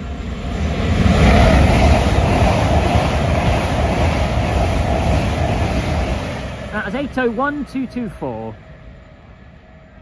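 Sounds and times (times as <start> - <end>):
electric train passing at speed: 0.0 - 10.0.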